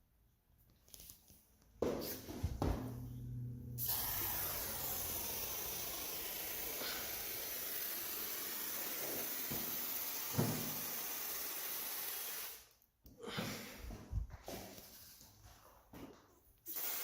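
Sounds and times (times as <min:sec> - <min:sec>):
aerosol can spraying: 0:03.8 - 0:12.8, 0:16.6 - 0:17.0.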